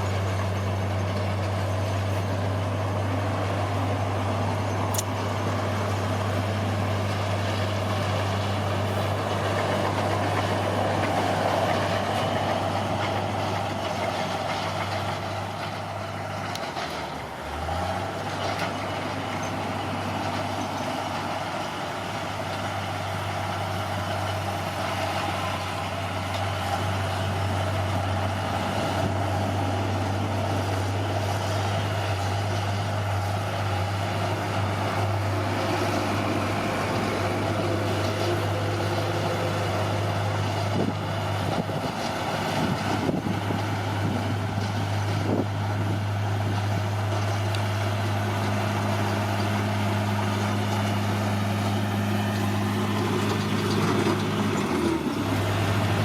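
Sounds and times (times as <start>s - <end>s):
bulldozer diesel engine humming: 0.0s - 56.0s.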